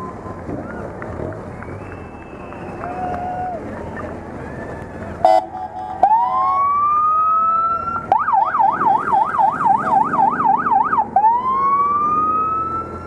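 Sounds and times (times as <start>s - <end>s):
motorcycle siren wailing and yelping: 4.4s - 13.0s.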